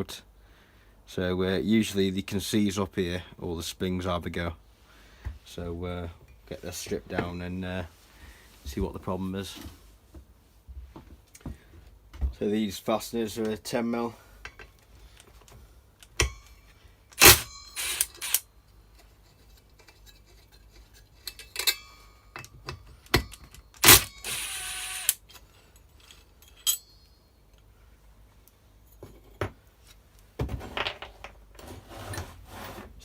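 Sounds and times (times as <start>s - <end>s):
metal tools clinking: 19.0s - 27.7s.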